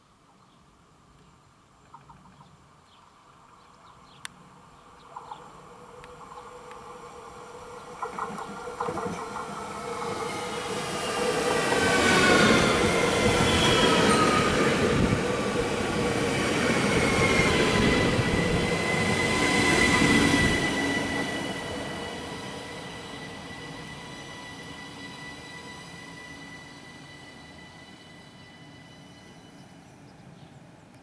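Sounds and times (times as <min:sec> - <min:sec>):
train wheel and running noise: 0:05.1 - 0:29.0
high whining train tones: 0:05.1 - 0:30.8.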